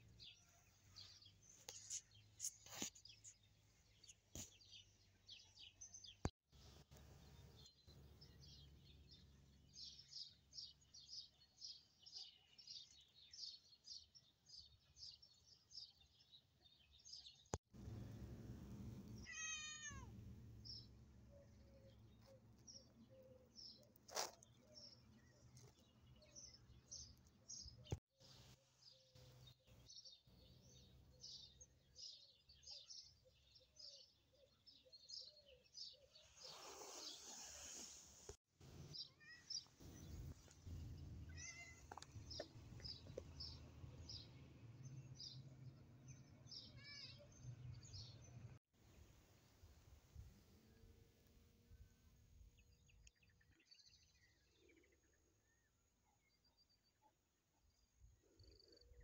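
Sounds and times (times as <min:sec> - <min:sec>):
small birds chirping: 0:00.0 - 0:48.6.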